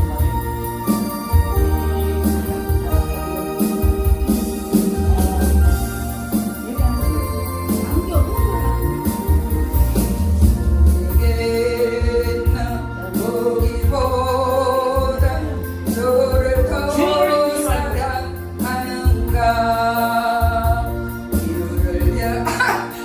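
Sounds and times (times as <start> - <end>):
karaoke backing track with bass: 0.0 - 23.0
person singing gospel song: 0.0 - 23.0.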